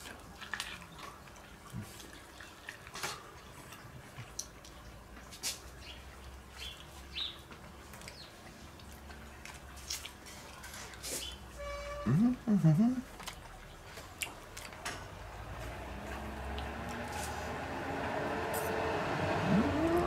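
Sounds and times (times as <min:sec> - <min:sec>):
chewing corn kernels: 0:00.0 - 0:04.8, 0:13.0 - 0:14.8.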